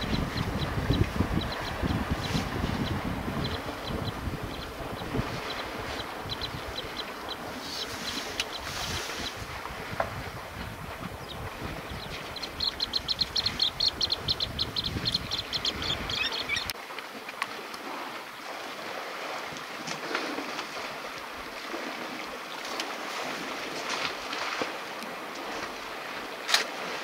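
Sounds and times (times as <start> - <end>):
wind rumble on microphone: 0.0 - 16.7
elephants splashing in water: 16.8 - 27.0.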